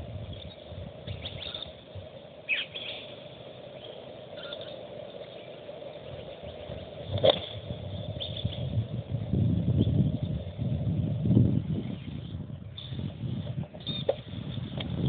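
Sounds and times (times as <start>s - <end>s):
birds chirping: 0.0s - 14.8s
faint background hum: 0.0s - 15.0s.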